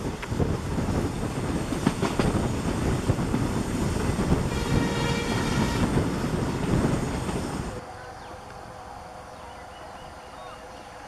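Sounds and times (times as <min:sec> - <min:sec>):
wheels clicking over rail joints: 0:00.0 - 0:04.5
train rumbling: 0:00.0 - 0:11.0.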